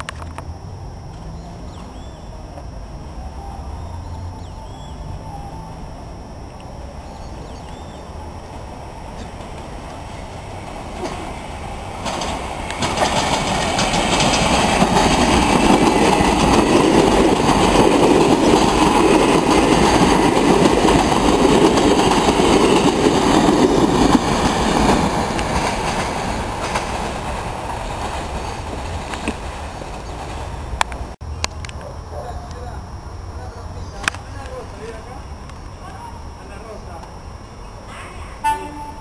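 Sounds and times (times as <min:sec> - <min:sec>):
train wheels clattering over rails: 0:09.2 - 0:30.6.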